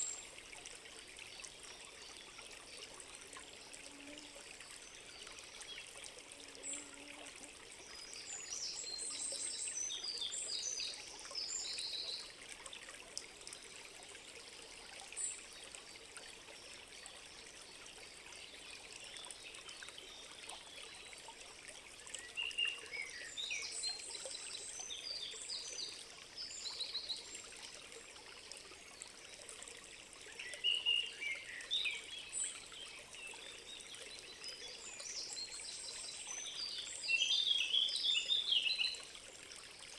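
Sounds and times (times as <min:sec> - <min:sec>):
trickling stream: 0:00.0 - 0:39.9.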